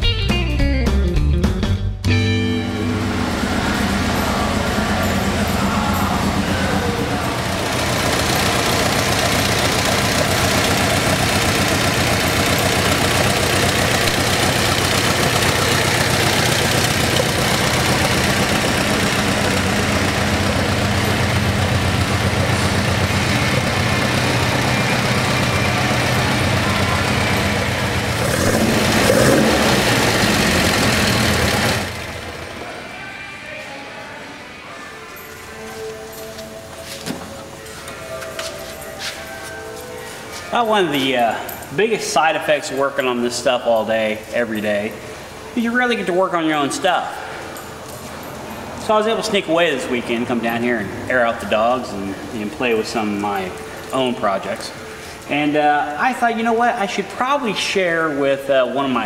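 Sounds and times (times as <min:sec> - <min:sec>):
engine running: 0:02.1 - 0:33.0.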